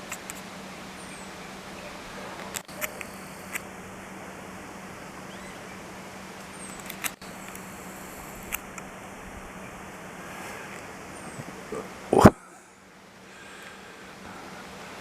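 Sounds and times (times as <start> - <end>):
low hum and hiss: 0.0 - 15.0
camera clicks: 2.4 - 3.7, 6.7 - 7.7, 8.3 - 8.9.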